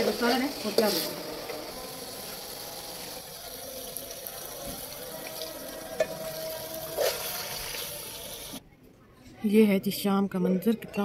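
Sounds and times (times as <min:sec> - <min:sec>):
food sizzling in a pot: 0:00.0 - 0:08.6
metal spoon stirring: 0:05.3 - 0:08.4.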